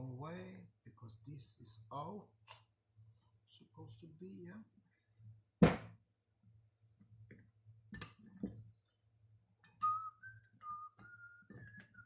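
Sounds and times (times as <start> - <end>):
person whistling a tune: 9.8 - 12.0.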